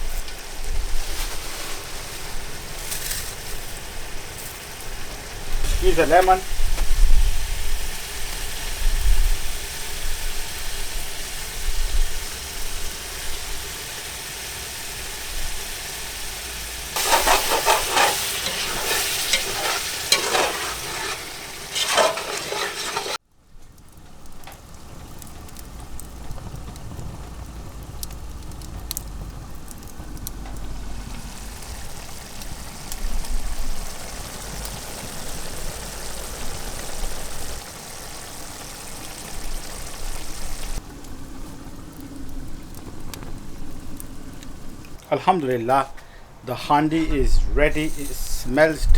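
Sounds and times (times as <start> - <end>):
food sizzling in a pan: 0.0 - 23.2, 30.6 - 44.9, 47.8 - 48.9
spoon scraping a pan: 17.0 - 23.2, 47.7 - 48.5.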